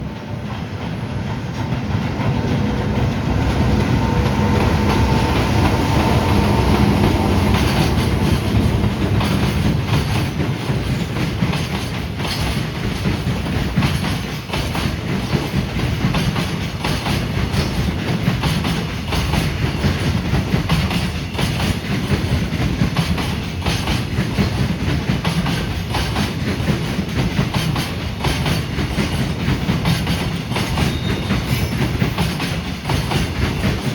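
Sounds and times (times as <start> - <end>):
electric locomotive hum: 0.0 - 11.5
train wheels clattering over rail joints: 0.1 - 33.9.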